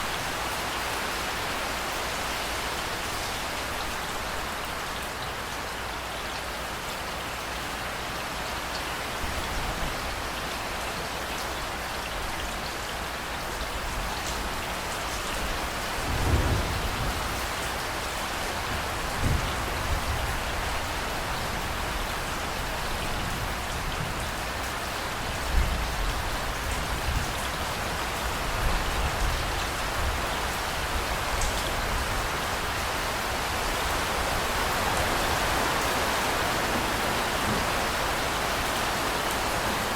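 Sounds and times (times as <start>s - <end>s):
heavy rain: 0.0s - 39.9s
thunder rumbling: 16.0s - 17.7s.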